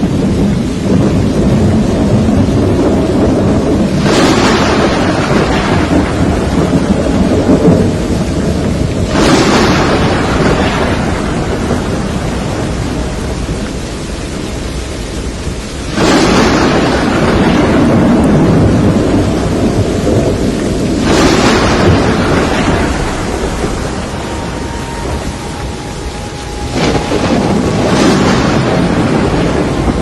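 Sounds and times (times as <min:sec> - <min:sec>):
steady rain: 0:00.0 - 0:30.0
thunder rumbling: 0:00.0 - 0:30.0.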